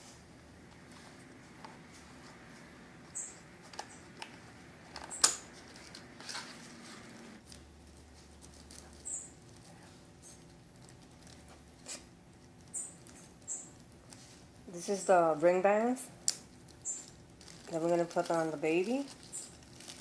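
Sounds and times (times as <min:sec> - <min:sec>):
handling clicks and rustles: 0:00.0 - 0:20.0
baby bird peeping: 0:12.7 - 0:13.8, 0:16.8 - 0:17.1.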